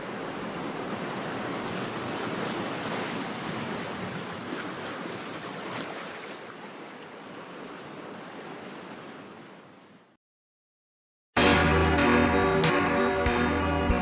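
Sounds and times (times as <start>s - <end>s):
ocean waves rushing: 0.0s - 10.0s.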